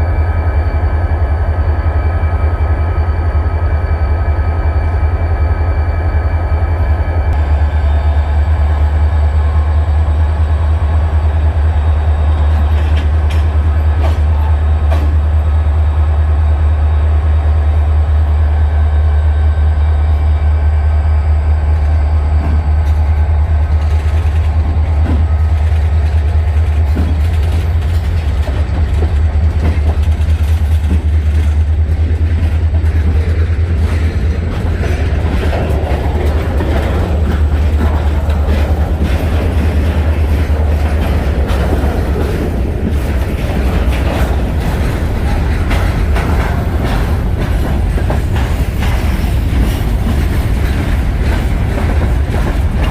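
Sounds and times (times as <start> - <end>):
freight train rumbling past: 0.0 - 52.9
wheels clicking over rail joints: 22.8 - 52.9.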